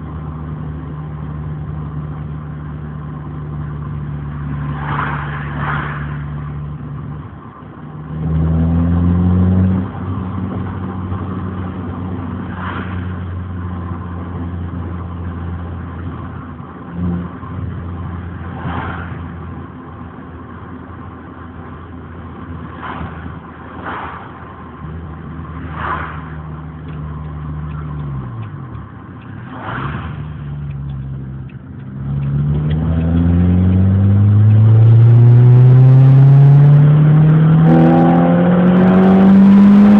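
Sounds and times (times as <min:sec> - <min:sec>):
car engine revving: 0:08.0 - 0:39.9.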